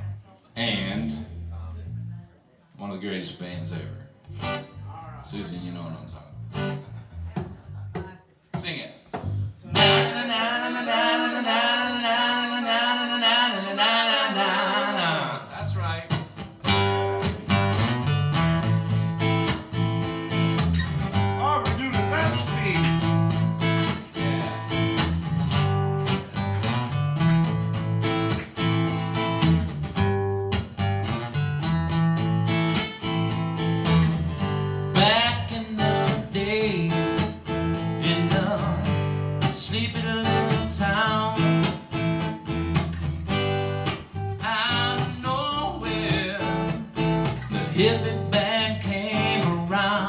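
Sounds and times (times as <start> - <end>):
acoustic guitar strumming chords: 9.2 - 50.0
strummed guitar chord: 21.2 - 25.0.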